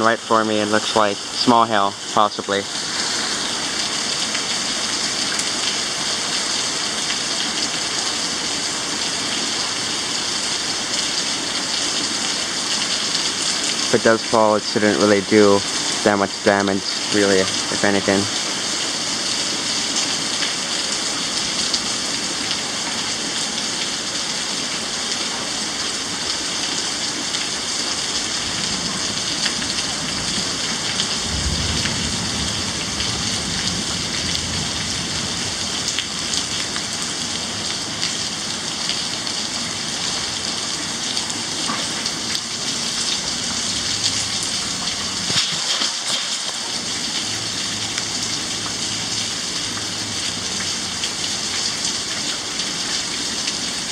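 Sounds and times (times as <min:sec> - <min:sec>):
heavy rain hissing: 0:00.0 - 0:53.9
low thunder rumble: 0:31.1 - 0:35.6.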